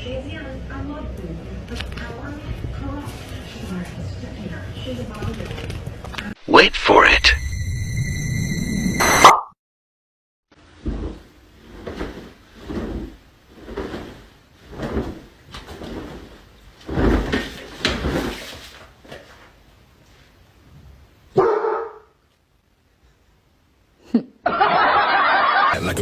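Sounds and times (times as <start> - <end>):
dog barking: 21.4 - 22.2.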